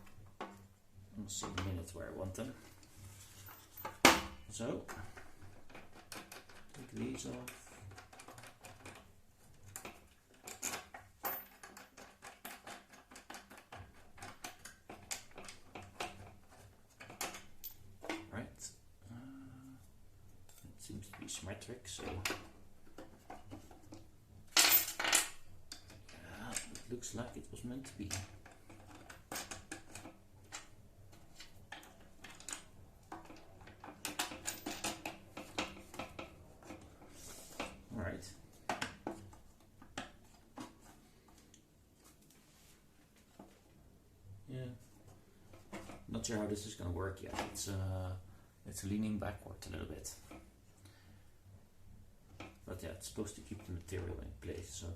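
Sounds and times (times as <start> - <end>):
clicks and knocks of parts handled: 3.5 - 18.3, 21.9 - 42.4, 44.8 - 46.1.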